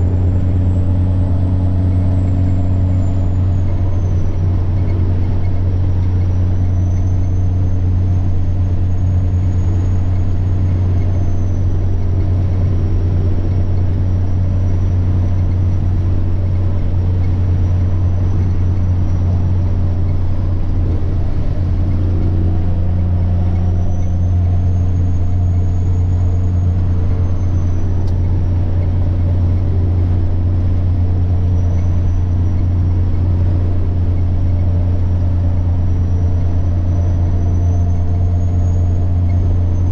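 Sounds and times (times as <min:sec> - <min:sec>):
diesel truck engine drone: 0:00.0 - 0:39.9
turbocharger whine: 0:00.0 - 0:39.9.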